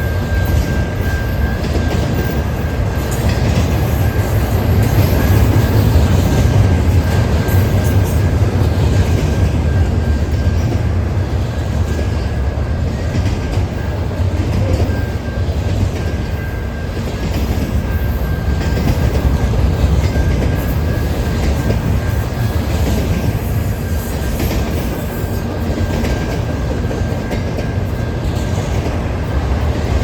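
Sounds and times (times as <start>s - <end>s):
freight train wheels rumbling on rail: 0.0s - 30.0s.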